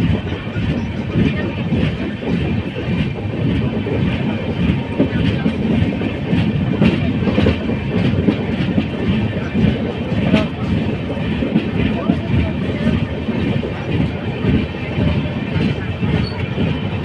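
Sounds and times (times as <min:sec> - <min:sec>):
train rumble: 0:00.0 - 0:17.0
wheels clickety-clack on rail joints: 0:00.0 - 0:17.0.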